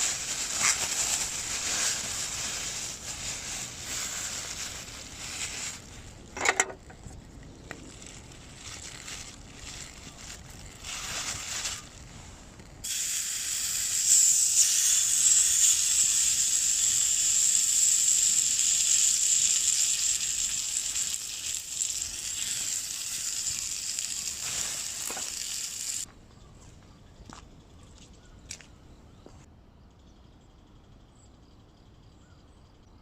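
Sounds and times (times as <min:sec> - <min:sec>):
food sizzling in a frying pan: 0:12.8 - 0:26.1.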